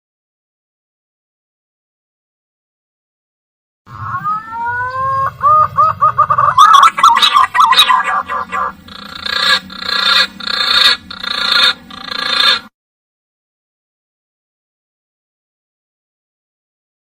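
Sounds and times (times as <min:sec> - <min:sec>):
pigeon whistling song: 0:03.9 - 0:12.6
harsh buzzy bird notes: 0:03.9 - 0:12.7.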